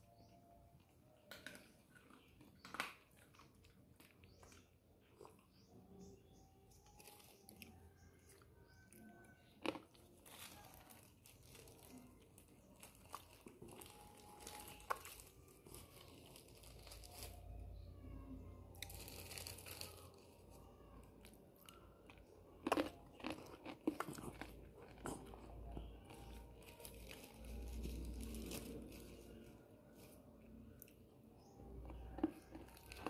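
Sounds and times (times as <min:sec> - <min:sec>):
crunchy snack chewing: 0:06.7 - 0:17.9, 0:18.8 - 0:31.0, 0:31.6 - 0:33.0.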